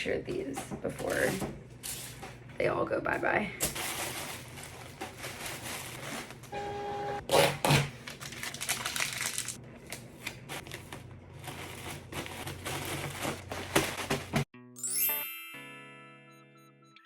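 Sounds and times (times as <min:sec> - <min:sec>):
packaging clicks and rustling: 0:03.6 - 0:06.5, 0:07.9 - 0:14.5.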